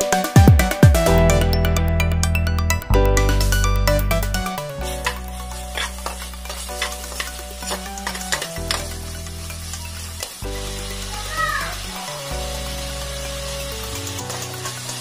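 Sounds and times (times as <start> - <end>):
low background music: 0.0 - 15.0
onions sizzling in oil: 4.1 - 15.0
spoon scraping a pan: 4.8 - 10.4.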